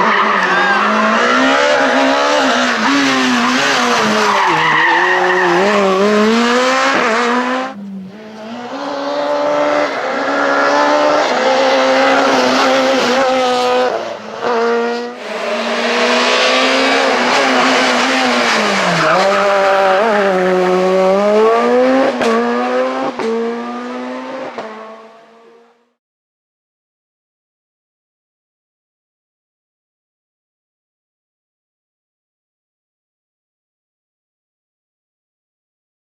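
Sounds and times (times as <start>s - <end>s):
rally car engine revving: 0.0s - 25.7s.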